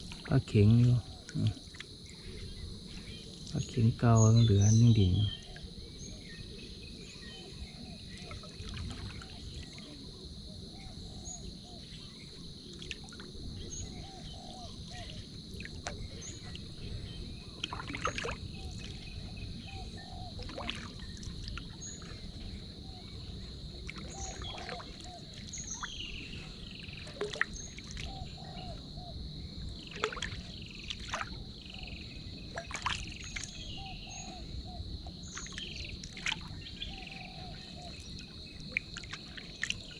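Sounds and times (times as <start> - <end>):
insect chorus drone: 0.0 - 39.9
sharp knocks or splashes: 17.6 - 18.4, 29.9 - 31.4, 32.6 - 33.5
bird chirps: 24.0 - 29.2.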